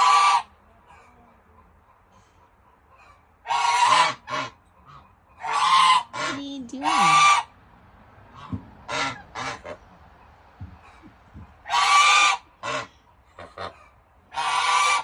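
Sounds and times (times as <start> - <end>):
goose honking: 0.0 - 1.1, 3.0 - 7.5, 8.3 - 10.0, 11.6 - 15.0.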